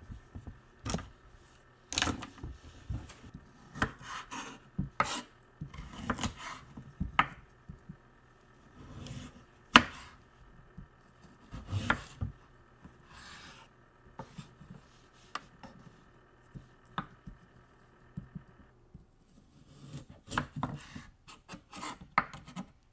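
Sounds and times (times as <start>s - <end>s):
knife chopping on cutting board: 1.9s - 7.4s, 8.8s - 10.2s, 11.5s - 12.3s, 19.8s - 22.6s.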